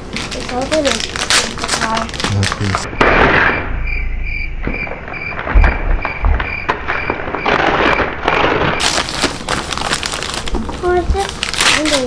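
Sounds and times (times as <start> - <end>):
wrapping paper crinkling: 0.0 - 2.9, 7.5 - 12.0
knocks: 5.5 - 6.8.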